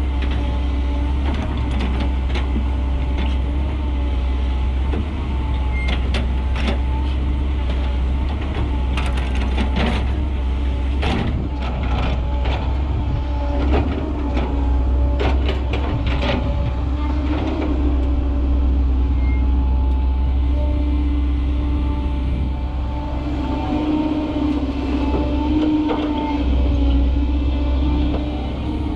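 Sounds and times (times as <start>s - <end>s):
truck diesel engine running: 9.8s - 28.9s.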